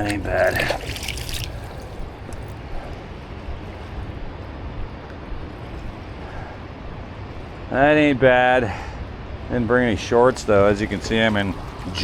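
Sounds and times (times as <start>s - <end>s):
fast river water rushing: 0.0s - 2.3s, 10.0s - 12.0s.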